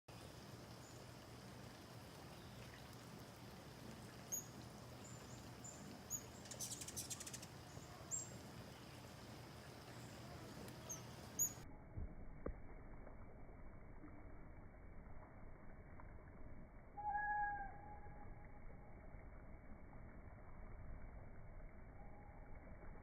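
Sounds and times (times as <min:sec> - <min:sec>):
hummingbird chirps: 0:04.3 - 0:09.2, 0:09.8 - 0:11.6.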